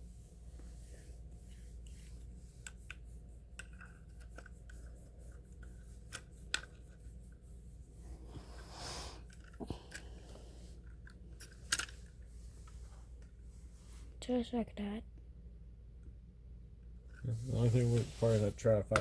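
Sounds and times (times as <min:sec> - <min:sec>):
small clicks and taps of handling: 0:02.6 - 0:07.0
rubbing scrape: 0:17.2 - 0:18.8.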